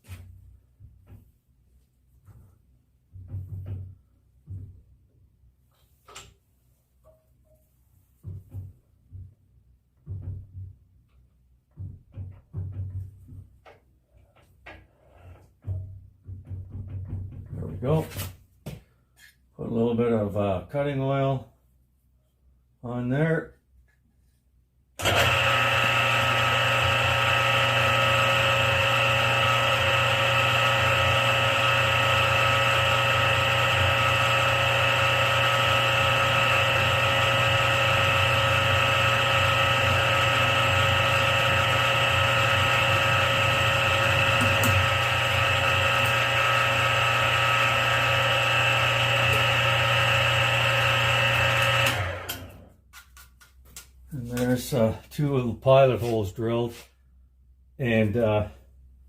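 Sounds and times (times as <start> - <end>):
drilling machine whining: 25.0 - 52.6.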